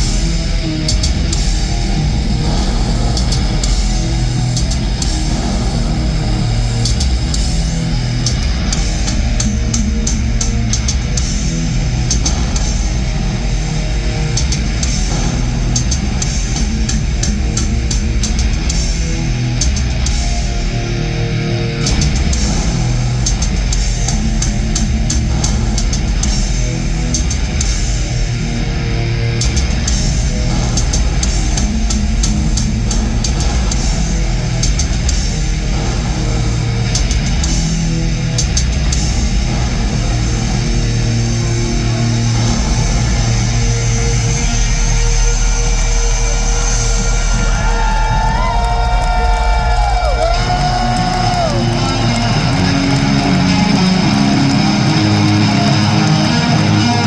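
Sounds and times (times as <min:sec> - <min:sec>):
heavy metal band playing live: 0:00.0 - 0:57.0.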